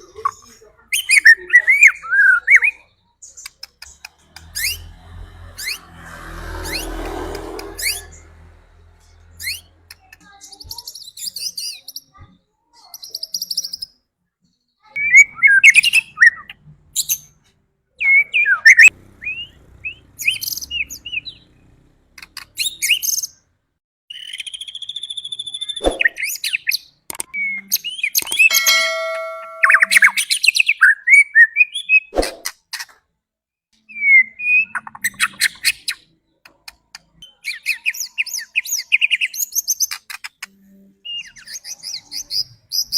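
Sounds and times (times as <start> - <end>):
bird singing whistles and trills: 24.2 - 26.7.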